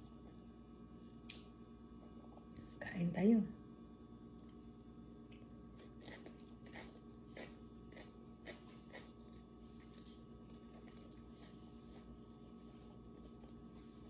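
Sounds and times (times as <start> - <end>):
faint chewing mouth sounds: 4.3 - 14.0.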